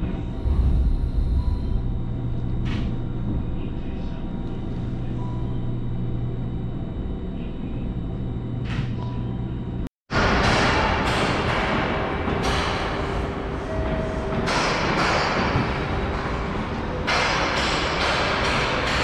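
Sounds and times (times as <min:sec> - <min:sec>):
train cabin rumble and hum: 0:00.0 - 0:09.9
loud harsh noise: 0:00.3 - 0:02.4.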